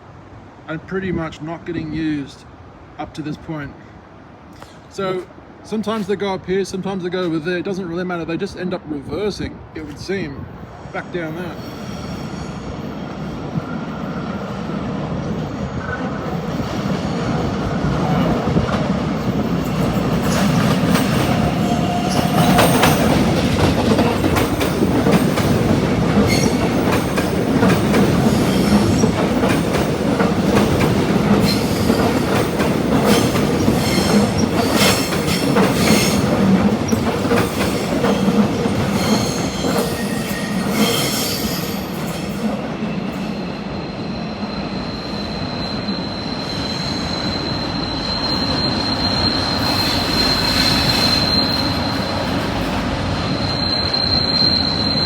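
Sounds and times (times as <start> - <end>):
train rumble: 0.0 - 55.0
high wheel squeal: 11.1 - 14.6, 19.7 - 30.0, 30.6 - 55.0.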